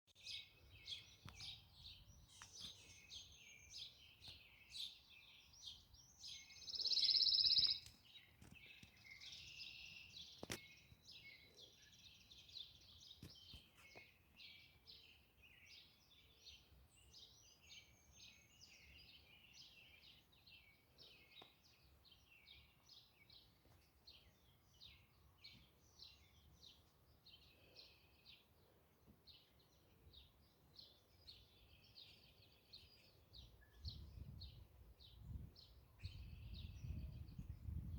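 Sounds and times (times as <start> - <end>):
small birds chirping: 0.1 - 37.9.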